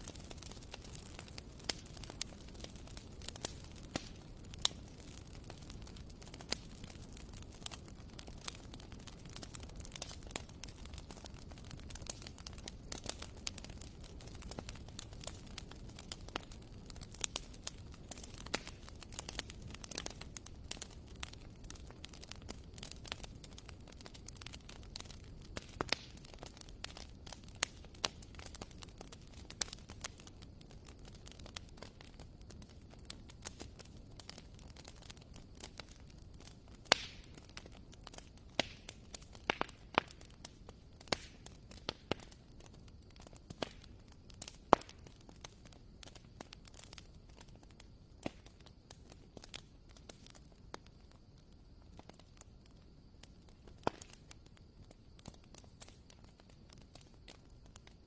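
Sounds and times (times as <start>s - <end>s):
logs crackling and popping: 0.0s - 58.0s
low rumble of flames: 0.0s - 58.0s.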